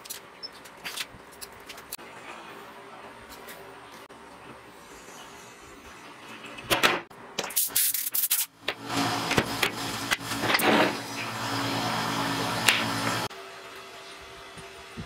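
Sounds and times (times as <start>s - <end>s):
electric grinder on steel: 8.8s - 15.0s.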